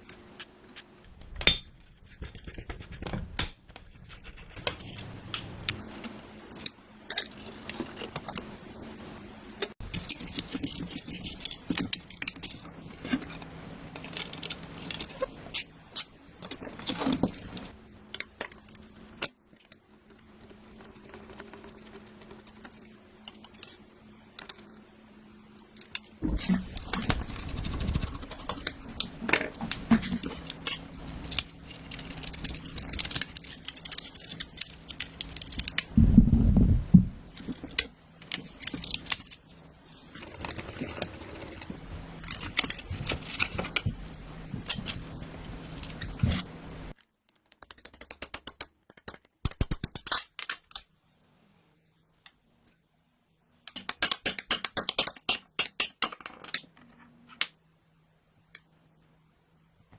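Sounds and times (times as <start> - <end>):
metal parts and tools rattling: 5.8 - 13.4.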